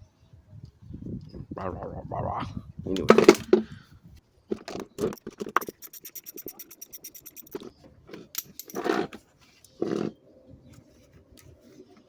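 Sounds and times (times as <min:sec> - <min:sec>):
tools clicking and scraping: 0:04.5 - 0:10.1.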